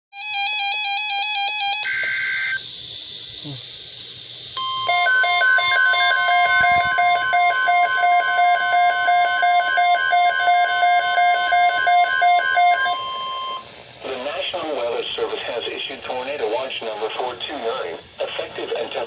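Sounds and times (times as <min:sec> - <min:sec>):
steady high alarm tone: 0:00.2 - 0:02.6, 0:04.6 - 0:13.7
pulsing alarm beeping: 0:04.6 - 0:13.7.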